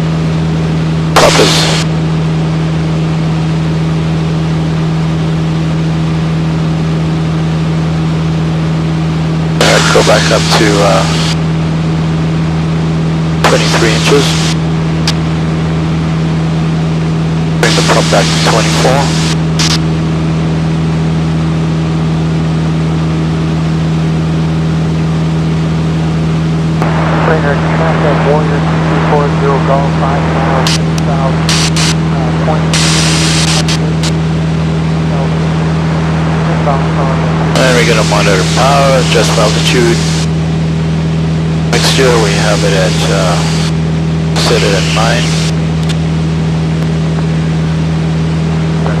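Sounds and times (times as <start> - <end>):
light aircraft engine droning: 21.4 - 46.8.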